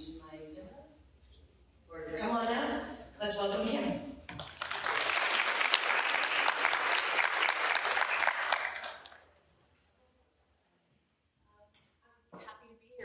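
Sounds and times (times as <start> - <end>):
audience applauding: 4.4 - 9.2.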